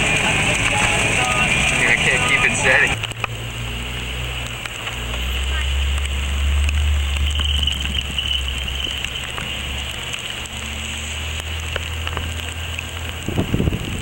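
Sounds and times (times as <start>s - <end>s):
engine drone inside vehicle: 0.0s - 14.0s
wind rumble on microphone: 0.0s - 14.0s.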